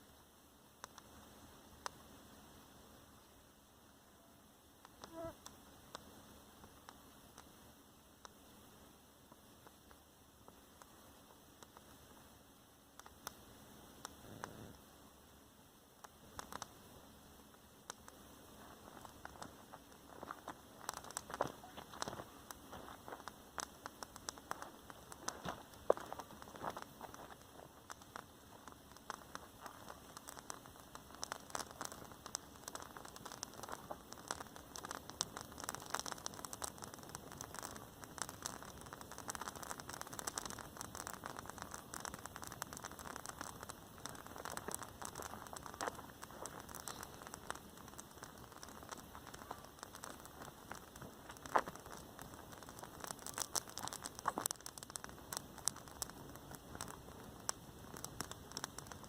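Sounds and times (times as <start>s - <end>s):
rain hiss: 0.0s - 59.0s
raindrops ticking on a surface: 17.5s - 59.0s.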